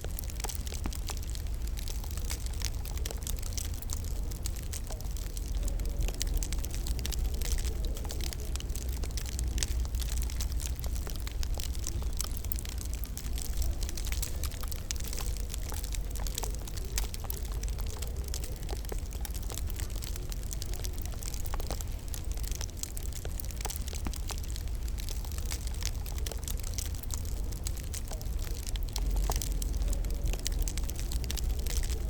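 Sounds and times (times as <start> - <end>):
low rumble of burning logs: 0.0 - 32.0
wood fire crackling: 0.0 - 32.0.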